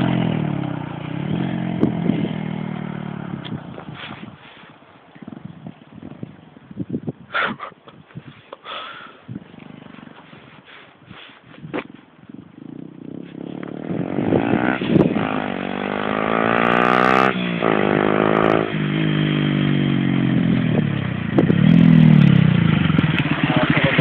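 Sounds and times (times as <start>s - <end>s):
motorcycle engine shifting gears: 0.0s - 4.4s, 9.3s - 10.6s, 11.4s - 24.0s.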